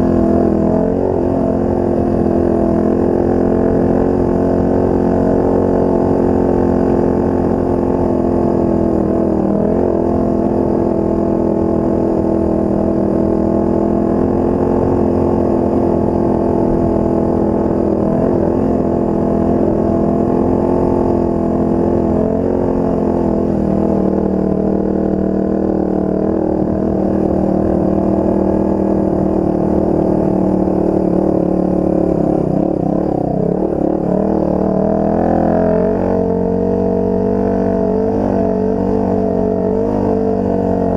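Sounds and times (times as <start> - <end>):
off-road vehicle engine running: 0.0 - 40.9.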